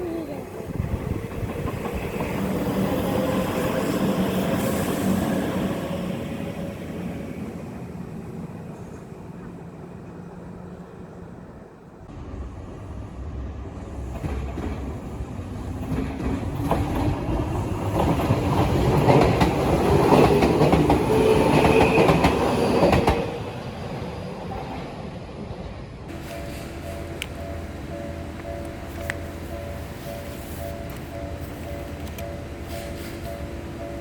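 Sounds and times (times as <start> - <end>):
electric train passing: 0.0 - 34.0
train wheels clacking over rail joints: 0.7 - 4.8, 15.7 - 23.2.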